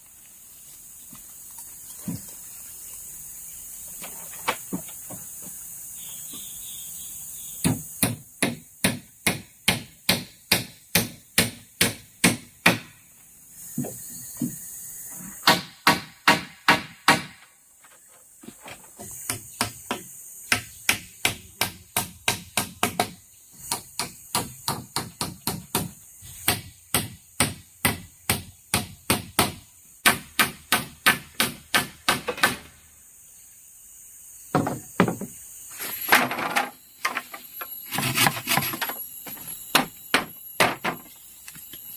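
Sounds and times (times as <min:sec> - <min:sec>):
tool striking bamboo: 0:07.6 - 0:13.0, 0:15.4 - 0:17.5, 0:19.0 - 0:32.8, 0:34.5 - 0:35.3, 0:35.9 - 0:41.1.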